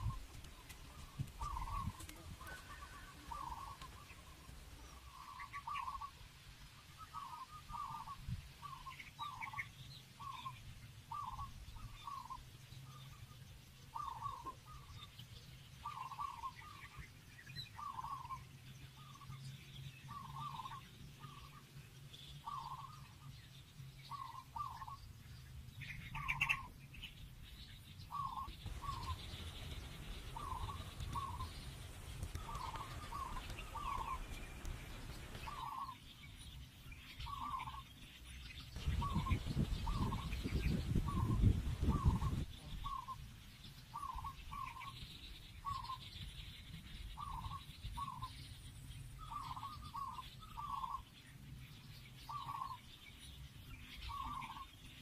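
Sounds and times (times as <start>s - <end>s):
low rumbling noise: 28.1s - 36.6s, 38.6s - 43.1s.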